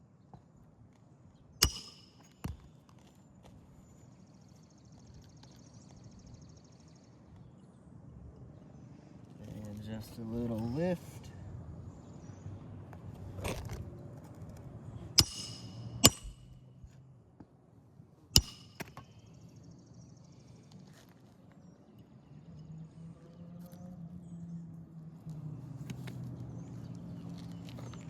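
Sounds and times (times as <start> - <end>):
hammer striking roofing nails: 1.6 - 2.7, 15.2 - 16.6, 18.4 - 19.1.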